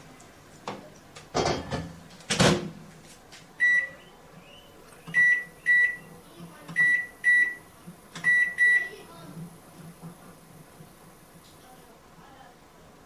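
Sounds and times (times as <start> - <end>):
keypad beeping: 5.1 - 6.1, 6.7 - 7.6, 8.2 - 8.9.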